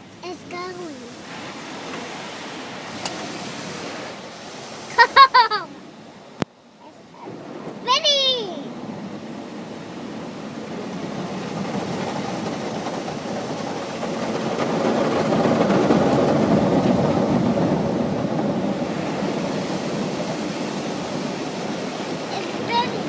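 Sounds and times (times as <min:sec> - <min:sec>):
car wash brushes and water spray: 0:10.4 - 0:23.0.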